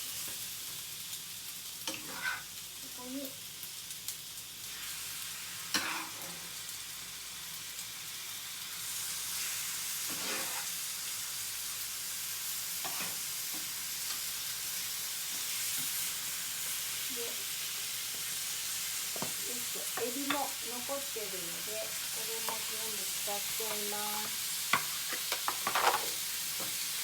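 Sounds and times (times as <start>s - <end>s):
pasta sizzling in a frying pan: 0.0s - 27.0s
utensil scraping pan: 1.9s - 2.5s, 10.0s - 10.8s.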